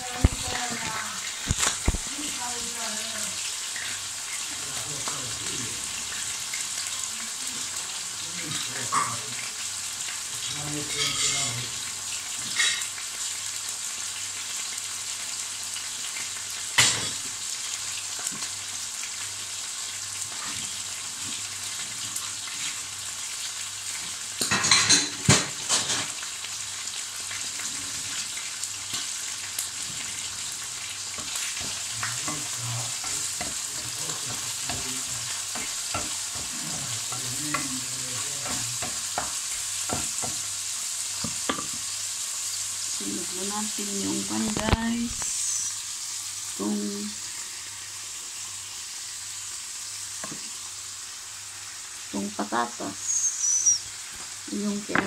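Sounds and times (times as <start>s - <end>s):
liver sizzling in a pan: 0.0s - 55.0s.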